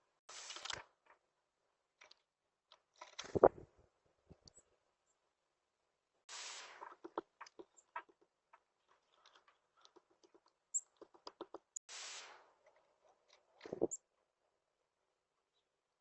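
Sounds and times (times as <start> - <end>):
birds tapping and clicking: 6.8 - 11.8.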